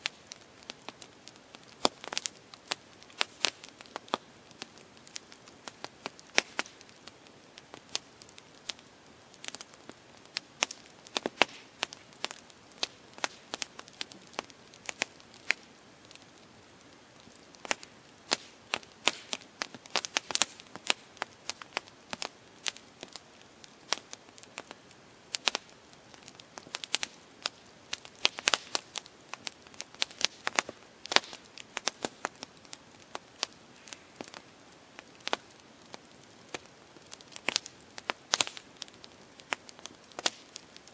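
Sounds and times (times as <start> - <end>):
campfire crackling and popping: 0.0 - 40.9
faint fire hiss: 0.0 - 40.9.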